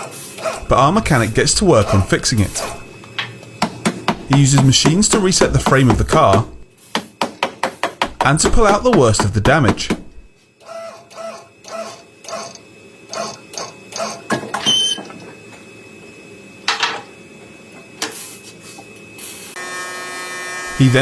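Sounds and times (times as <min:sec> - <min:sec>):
steady low hum: 0:00.5 - 0:06.8
knocks and clanks on car body metal: 0:03.6 - 0:10.3
buzzing power tool: 0:19.6 - 0:21.0.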